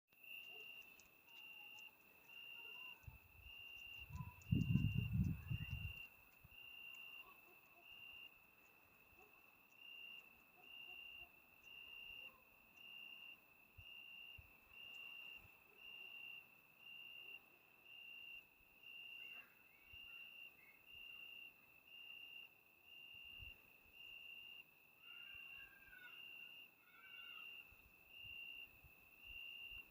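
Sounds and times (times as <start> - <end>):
crickets trilling: 0.2 - 29.9.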